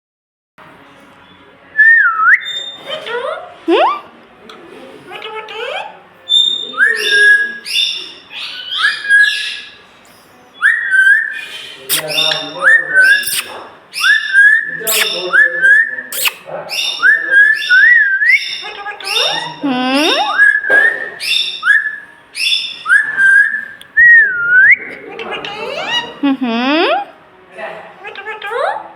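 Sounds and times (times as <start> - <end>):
parrot whistling: 6.3 - 9.8, 10.6 - 27.1.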